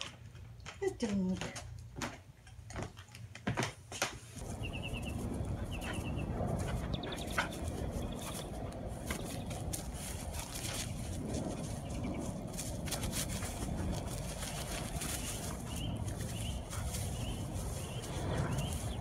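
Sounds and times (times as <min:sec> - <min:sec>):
low outdoor noise: 0:00.0 - 0:19.0
small bird chirping: 0:04.4 - 0:09.6, 0:14.6 - 0:19.0.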